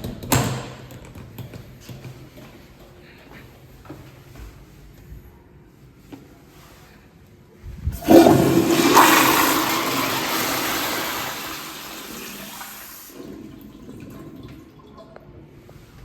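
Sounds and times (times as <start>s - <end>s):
toilet flushing water rush: 8.0s - 15.2s.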